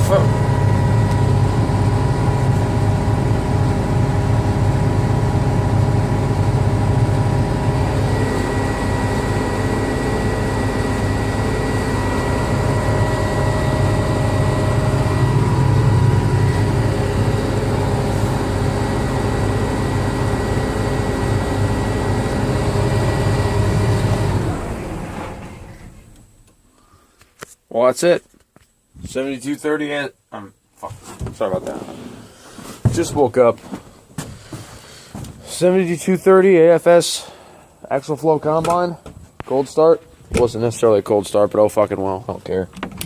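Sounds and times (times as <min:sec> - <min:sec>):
diesel engine idling: 0:00.0 - 0:26.4.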